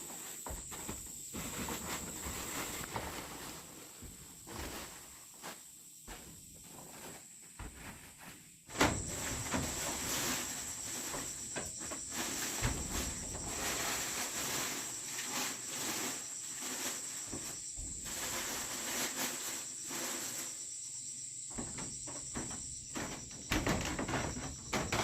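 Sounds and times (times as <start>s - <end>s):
insects chirring: 8.7s - 25.0s.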